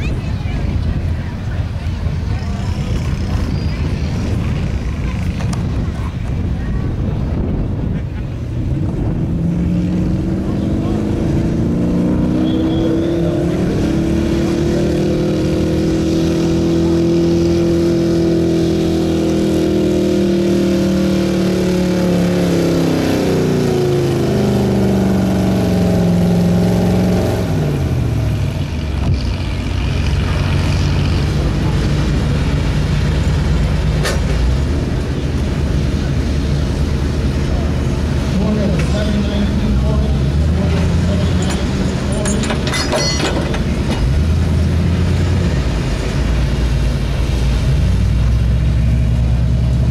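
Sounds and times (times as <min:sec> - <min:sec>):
truck engine running under load: 0:15.7 - 0:49.9.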